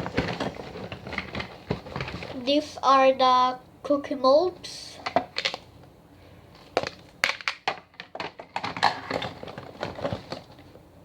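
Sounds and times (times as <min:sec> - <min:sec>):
packaging crinkling: 0:00.0 - 0:02.4, 0:06.6 - 0:10.8.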